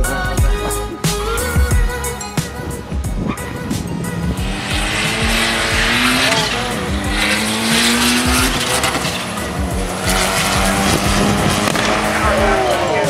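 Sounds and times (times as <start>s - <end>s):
car engine revving: 0.6s - 13.0s
tyres squealing: 3.2s - 13.0s.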